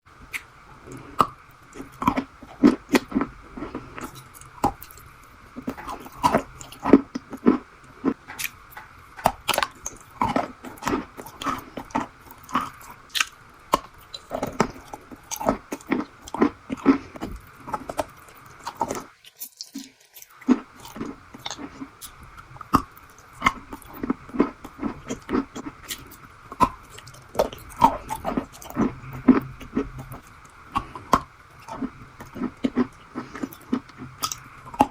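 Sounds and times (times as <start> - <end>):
faint steady hum: 0.0 - 34.9
crunchy chewing: 0.2 - 34.9.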